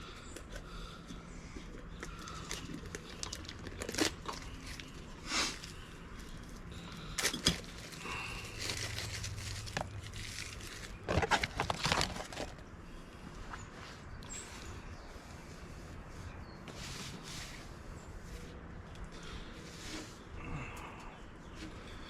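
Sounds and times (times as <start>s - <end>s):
handling rustles and crinkles: 0.2s - 20.2s.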